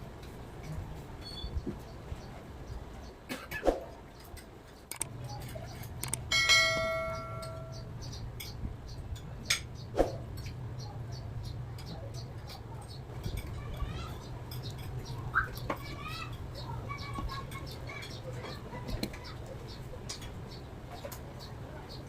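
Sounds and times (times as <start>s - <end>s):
low steady hum: 0.0s - 21.8s
small parts clicking and tapping: 4.2s - 7.8s
bright metallic ring: 6.3s - 7.8s.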